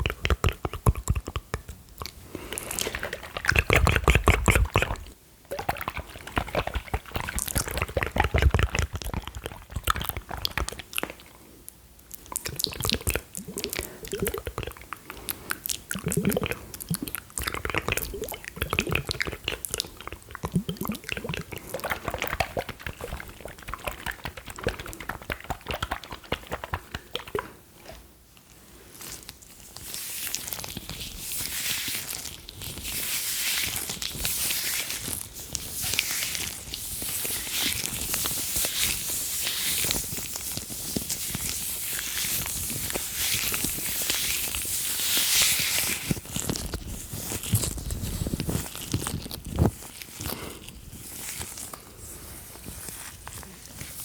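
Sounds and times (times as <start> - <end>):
wet mouth clicks and smacks: 0.0 - 28.5
gloves rubbing on microphone: 20.8 - 27.1.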